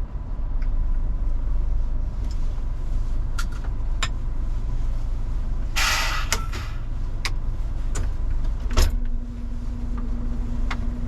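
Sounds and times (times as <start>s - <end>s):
diesel engine low rumble: 0.0s - 11.0s
steady low hum: 0.0s - 11.0s
short hiss: 5.8s - 6.9s.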